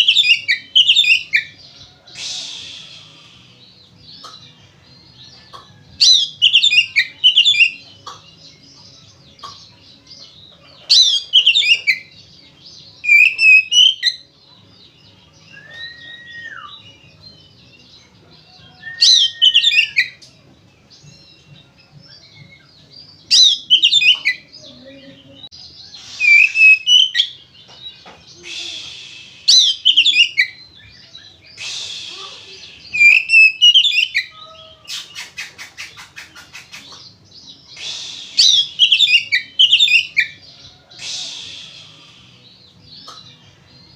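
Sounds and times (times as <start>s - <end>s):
bird whistling low: 2.2s - 3.3s, 15.5s - 16.8s, 18.8s - 20.2s, 25.9s - 27.4s, 28.4s - 30.6s, 31.6s - 36.5s, 37.8s - 40.4s
bird singing high notes: 25.9s - 27.5s, 28.3s - 34.9s.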